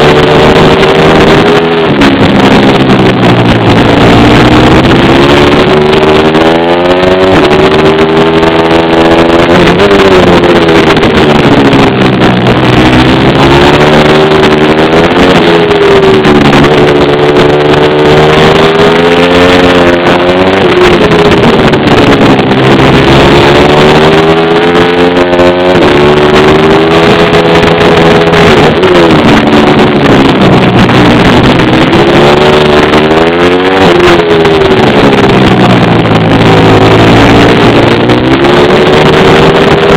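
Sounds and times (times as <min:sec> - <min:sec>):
small motorbike engine revving: 0:00.0 - 0:39.9.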